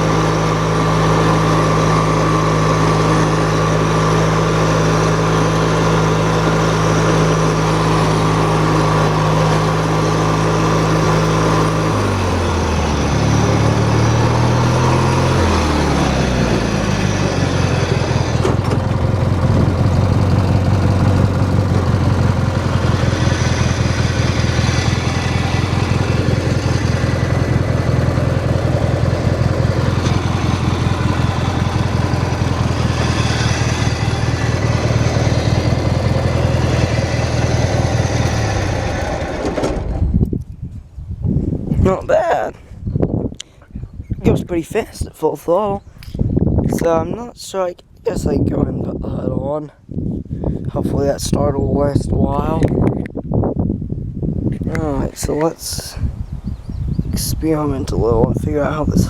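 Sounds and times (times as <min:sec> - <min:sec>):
lawn tractor engine running: 0:00.0 - 0:40.4, 0:57.2 - 0:59.0.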